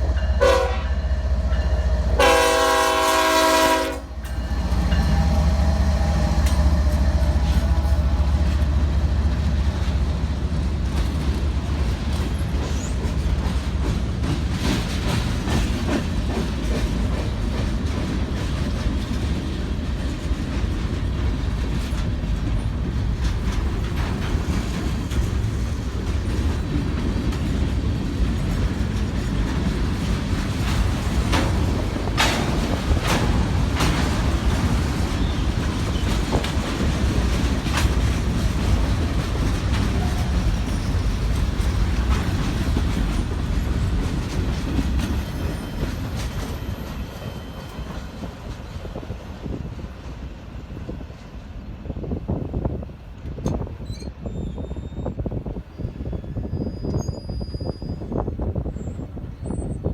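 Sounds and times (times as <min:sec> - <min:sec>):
train rumble: 0:00.0 - 0:59.9
wheels clacking over rail joints: 0:00.1 - 0:51.6
locomotive air horn: 0:00.4 - 0:01.1, 0:02.0 - 0:08.4.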